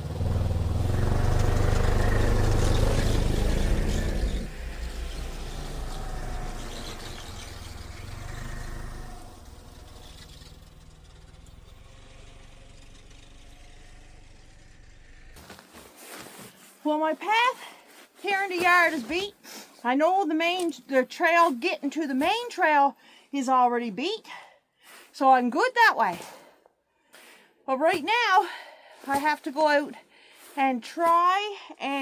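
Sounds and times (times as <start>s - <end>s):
snowmobile engine running: 0.0s - 15.4s.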